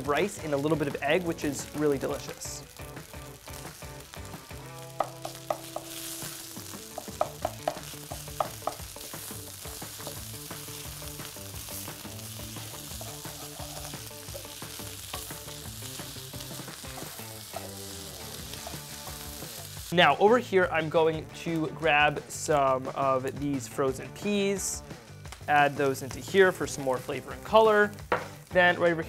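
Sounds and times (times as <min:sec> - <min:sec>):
fried rice sizzling in a pan: 0:00.0 - 0:20.0
sharp knocks against pan: 0:28.1 - 0:28.4.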